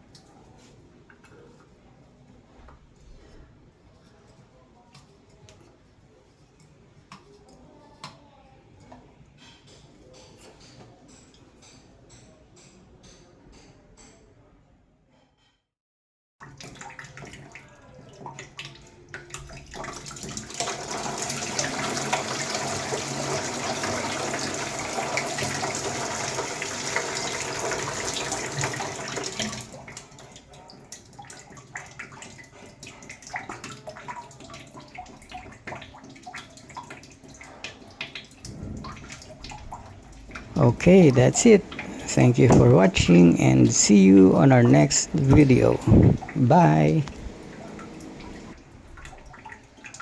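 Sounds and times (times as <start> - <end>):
water splashing and dripping: 16.4 - 43.0, 44.2 - 50.0.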